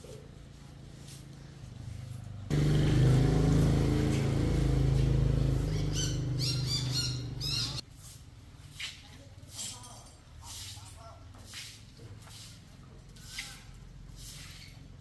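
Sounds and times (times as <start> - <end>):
motor vehicle humming: 1.7 - 7.8.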